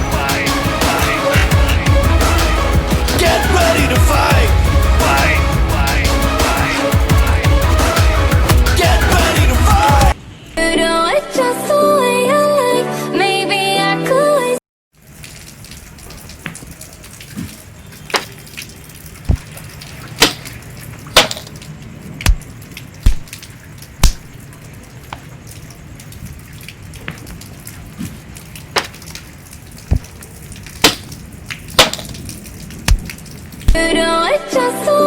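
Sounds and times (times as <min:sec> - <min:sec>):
rain hissing: 0:00.0 - 0:10.6, 0:15.0 - 0:34.7
raindrops tapping close by: 0:14.9 - 0:34.0.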